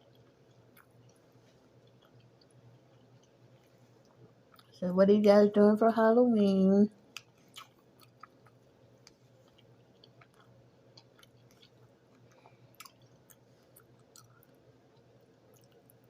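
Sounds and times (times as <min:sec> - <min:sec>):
person chewing: 0:00.0 - 0:04.8, 0:07.1 - 0:16.0.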